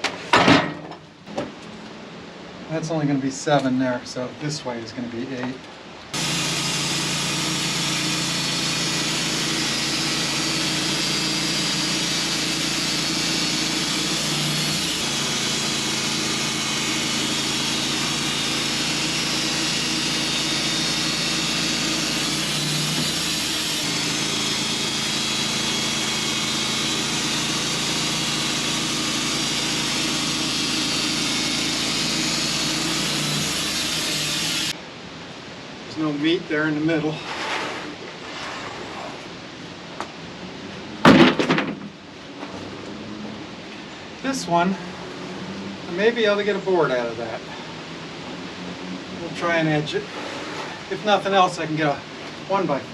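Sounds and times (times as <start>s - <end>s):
sawmill engine hum: 4.1s - 41.1s, 42.1s - 52.9s
saw blade cutting log: 6.1s - 34.8s, 37.0s - 39.2s, 49.3s - 51.9s.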